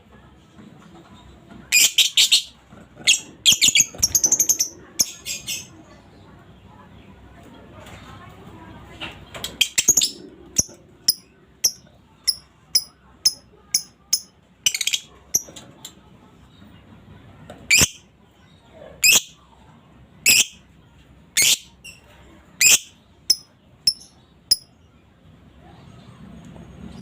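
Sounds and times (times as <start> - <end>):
lovebird chirping and calling: 1.7 - 5.7, 9.6 - 15.5, 20.2 - 20.6, 22.6 - 24.7.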